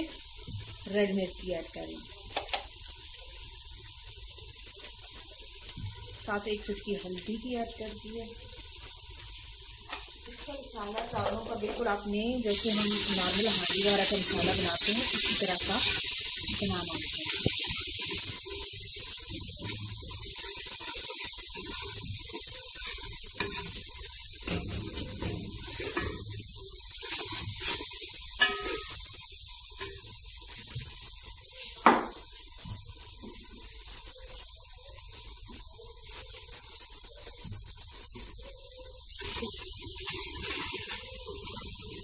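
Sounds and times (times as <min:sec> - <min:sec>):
masala sizzling in oil: 0:00.0 - 0:42.0
metal spoon knocking pot: 0:28.4 - 0:29.0.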